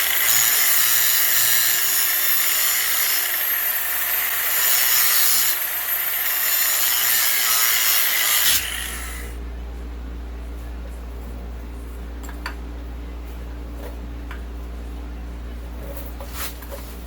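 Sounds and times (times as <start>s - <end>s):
grinder winding down whine: 0.0s - 9.3s
angle grinder grinding steel: 0.0s - 9.4s.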